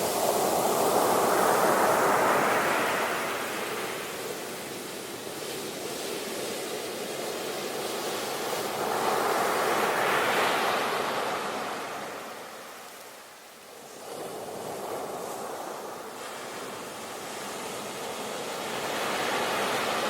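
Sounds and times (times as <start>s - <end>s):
ocean waves crashing: 14.5s - 20.0s.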